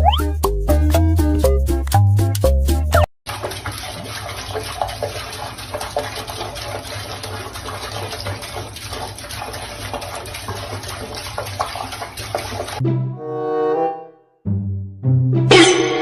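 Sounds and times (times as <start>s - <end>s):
running water: 3.0s - 12.8s.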